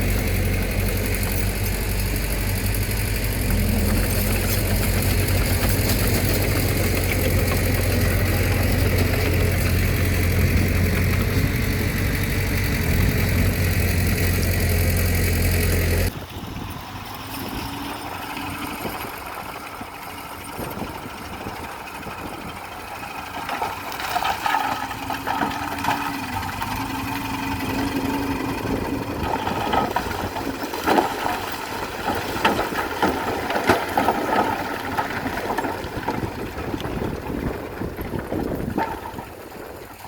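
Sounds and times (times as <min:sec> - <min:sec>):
diesel engine running: 0:00.0 - 0:40.0
metallic clanks and rattles: 0:23.2 - 0:39.7.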